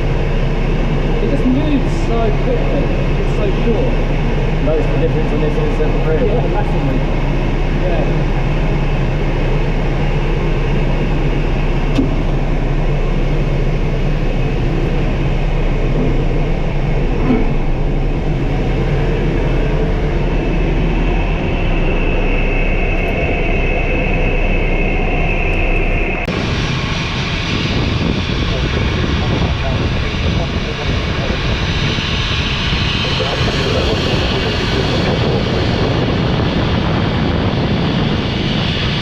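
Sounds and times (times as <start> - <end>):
tug engine running: 0.0 - 28.6
high steady whine: 0.0 - 39.0.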